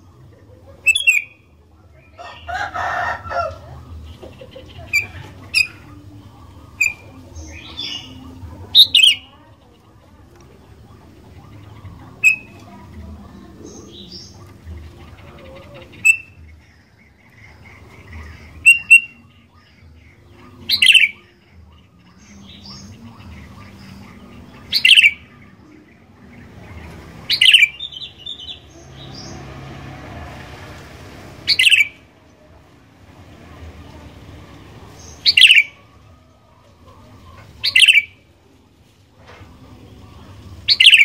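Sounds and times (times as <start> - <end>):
bulbul calling: 0.6 - 1.5, 3.2 - 29.4, 31.4 - 32.1, 34.9 - 36.0, 36.6 - 38.3, 40.4 - 41.0.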